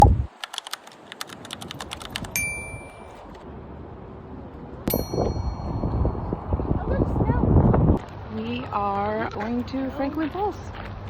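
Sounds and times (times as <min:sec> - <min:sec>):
typing clicks: 0:00.0 - 0:02.4
bell-like dings: 0:02.4 - 0:03.2, 0:04.9 - 0:06.3.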